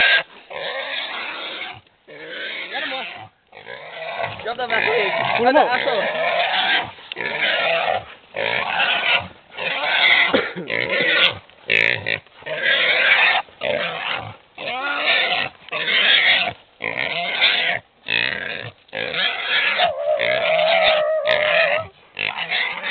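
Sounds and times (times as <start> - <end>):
wild boar squealing: 0.0 - 22.9.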